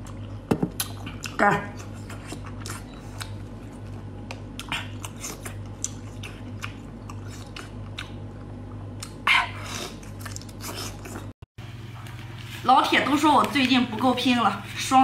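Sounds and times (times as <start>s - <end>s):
wet chewing and lip smacking: 0.0s - 9.2s, 9.8s - 11.3s.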